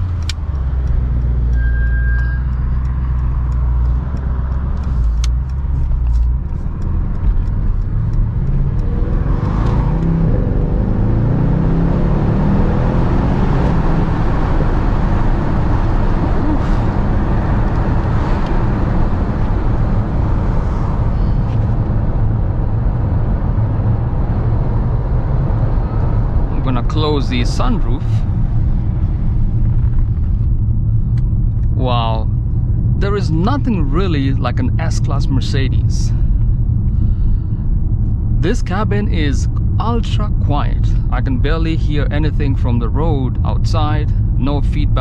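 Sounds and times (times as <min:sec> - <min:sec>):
car engine accelerating through gears: 0:00.0 - 0:41.4
road noise: 0:00.0 - 0:45.0.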